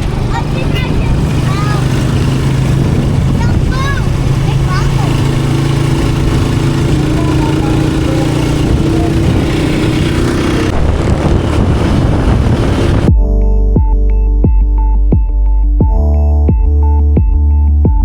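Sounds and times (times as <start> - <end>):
loud vehicle engine running: 0.0 - 13.2
electronic music with beat: 13.1 - 18.0.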